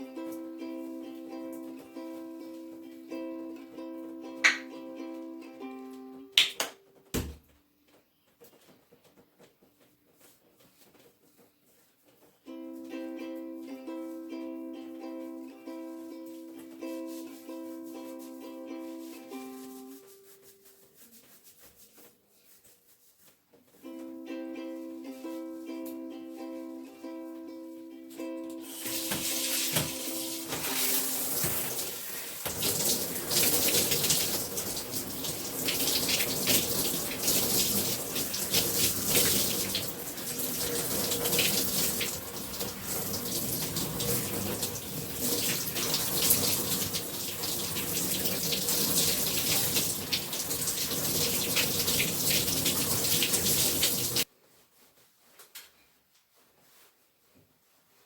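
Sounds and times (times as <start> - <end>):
water running from a tap: 28.6 - 54.3
water splashing on hair: 28.7 - 54.3.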